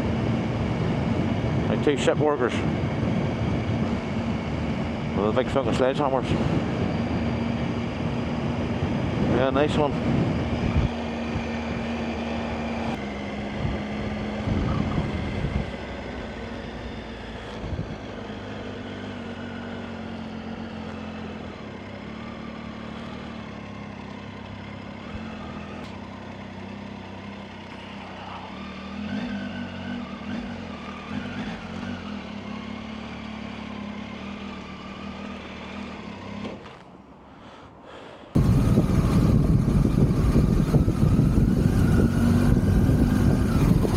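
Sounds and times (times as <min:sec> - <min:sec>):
motorcycle engine running: 0:00.0 - 0:36.8, 0:38.4 - 0:43.9
road noise: 0:00.0 - 0:43.9.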